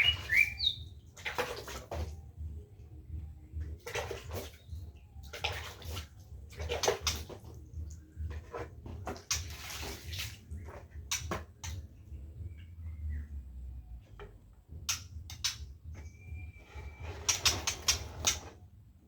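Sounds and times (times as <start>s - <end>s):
water splashing: 0.0s - 2.2s, 3.7s - 11.9s.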